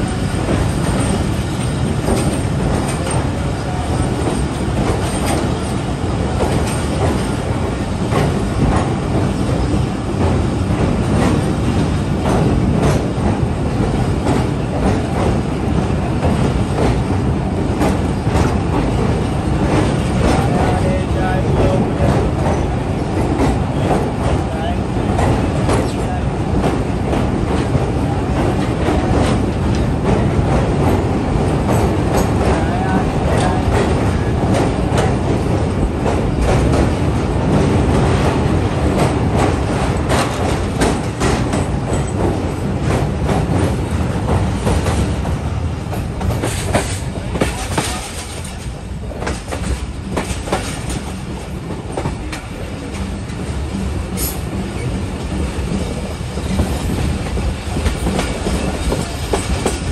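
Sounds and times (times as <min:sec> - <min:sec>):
train rumbling over bridge: 0:00.0 - 0:59.9
wheels clicking over rails: 0:00.1 - 0:20.9.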